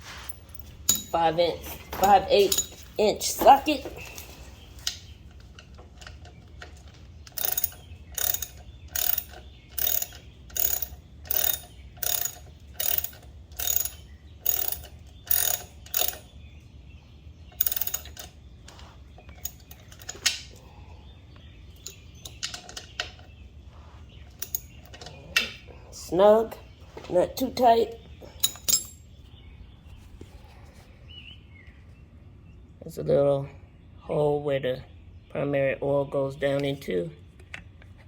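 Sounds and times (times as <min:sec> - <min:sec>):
socket ratchet clicking: 0:07.3 - 0:16.3, 0:17.6 - 0:18.3.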